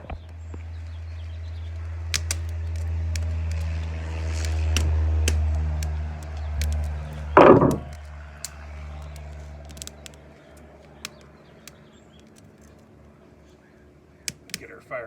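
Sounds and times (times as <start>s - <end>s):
low droning motor hum: 0.0s - 14.2s
light clicks: 1.6s - 14.7s
loud clunk: 7.4s - 7.9s.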